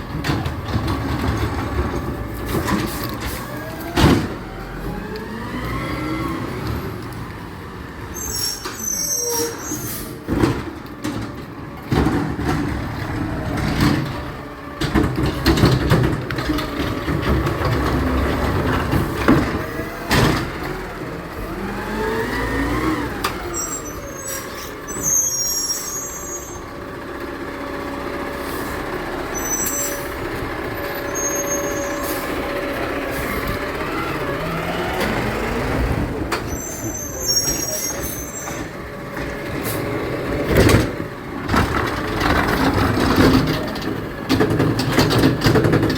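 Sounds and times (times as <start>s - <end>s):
garbage truck clanks and knocks: 0.0s - 5.4s, 8.6s - 45.9s
truck engine revving: 0.0s - 8.6s, 11.8s - 45.9s
short high squeaks: 8.2s - 10.1s, 23.5s - 26.6s, 29.3s - 30.2s, 31.0s - 32.4s, 36.4s - 38.7s.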